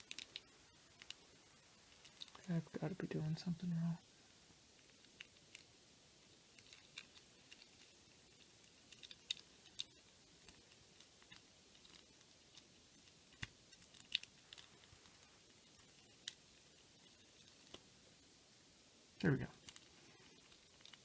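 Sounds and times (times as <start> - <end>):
plastic packaging crackling: 1.9 - 2.6, 13.3 - 16.4.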